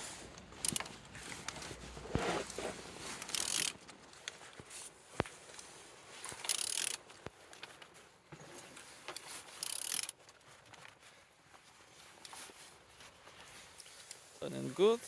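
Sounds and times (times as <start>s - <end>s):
wrench clicks and scrapes on engine: 0.4s - 4.4s, 6.3s - 7.0s, 9.1s - 10.2s.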